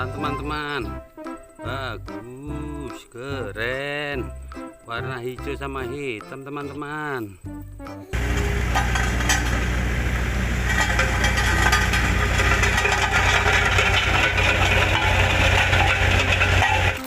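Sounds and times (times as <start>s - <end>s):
motor engine running: 8.2s - 17.0s.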